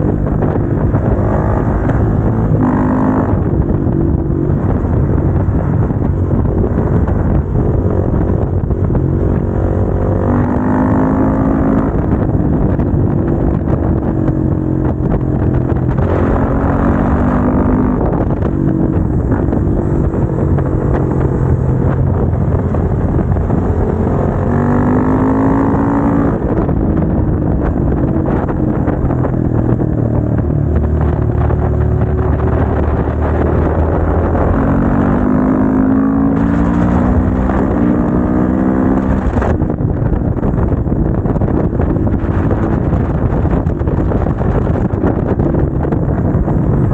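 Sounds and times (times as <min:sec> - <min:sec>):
motorcycle engine accelerating: 0:00.0 - 0:46.9.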